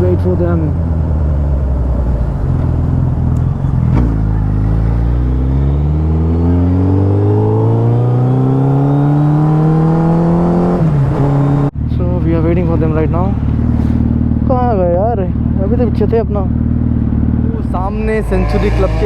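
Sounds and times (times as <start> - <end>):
motorcycle engine revving up: 3.9 - 11.7, 15.4 - 19.0.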